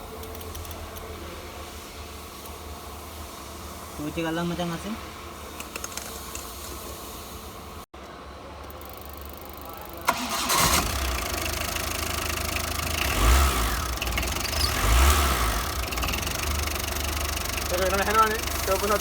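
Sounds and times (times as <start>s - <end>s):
diesel engine starting and running: 8.7s - 19.0s
ignition click: 10.1s - 11.0s.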